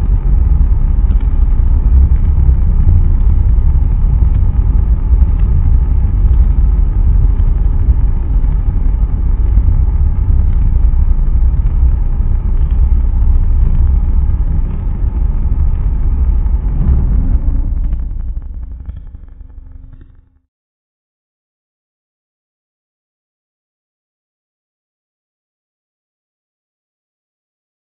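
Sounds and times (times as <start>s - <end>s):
rocket engine rumbling: 0.0s - 20.4s.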